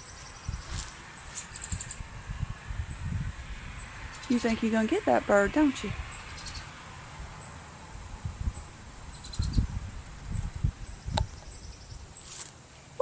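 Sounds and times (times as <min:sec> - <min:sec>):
low rustles and bumps: 0:06.8 - 0:12.6.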